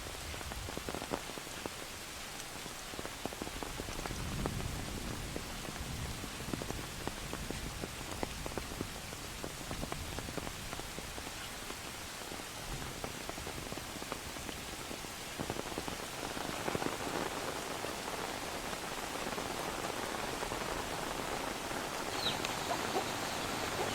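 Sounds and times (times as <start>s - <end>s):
rain falling: 0.0s - 23.9s
raindrops ticking: 0.3s - 23.9s.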